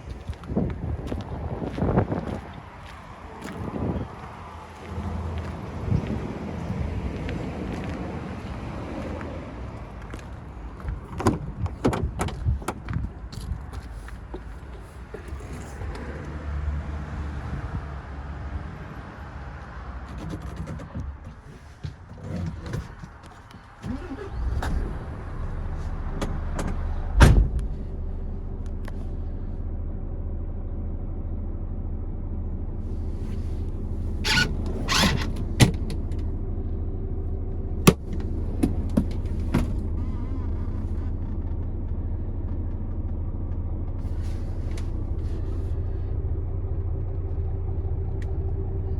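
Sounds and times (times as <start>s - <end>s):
diesel engine idling: 0.1s - 11.8s, 23.5s - 48.9s.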